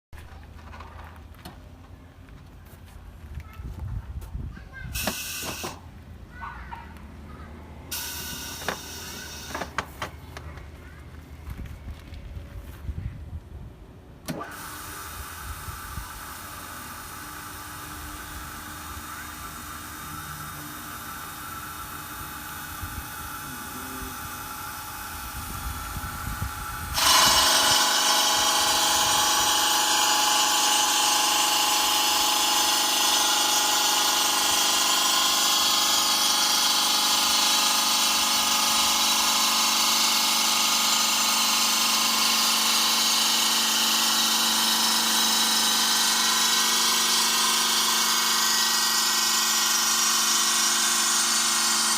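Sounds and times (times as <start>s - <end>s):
stone saw running: 7.9s - 9.7s, 14.3s - 51.9s.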